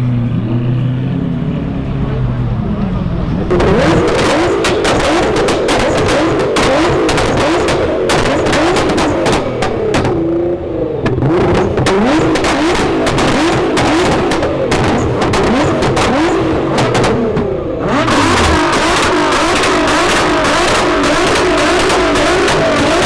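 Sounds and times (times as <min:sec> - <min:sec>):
sports car engine revving: 0:03.2 - 0:23.0
exhaust crackles and pops: 0:03.6 - 0:10.2.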